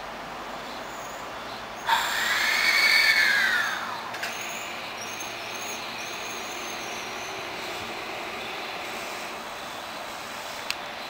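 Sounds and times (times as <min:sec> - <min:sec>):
electric train moving: 0:00.9 - 0:11.0
train motor whine with hiss: 0:01.9 - 0:10.7.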